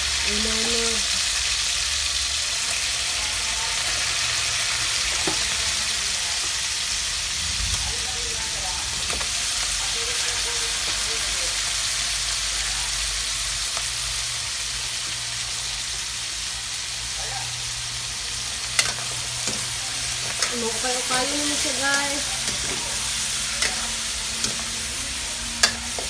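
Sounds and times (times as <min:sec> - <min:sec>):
meat sizzling in oil: 0:00.0 - 0:26.0
metal ladle clinking on pan: 0:25.6 - 0:26.0.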